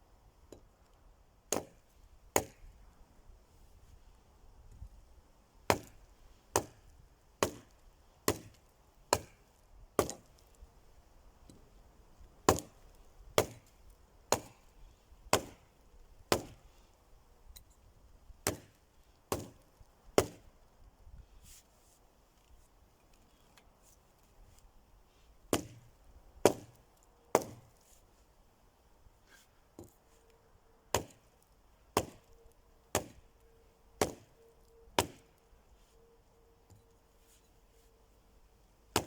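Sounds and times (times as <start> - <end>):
axe chopping wood: 1.5 - 1.8, 2.4 - 2.7, 5.7 - 6.8, 7.4 - 9.4, 10.0 - 10.3, 12.4 - 12.8, 13.4 - 13.7, 14.3 - 14.6, 15.3 - 15.7, 16.3 - 16.6, 18.4 - 19.6, 20.2 - 20.4, 25.5 - 27.7, 30.9 - 31.2, 32.0 - 32.3, 32.9 - 33.2, 34.0 - 34.3, 35.0 - 35.3.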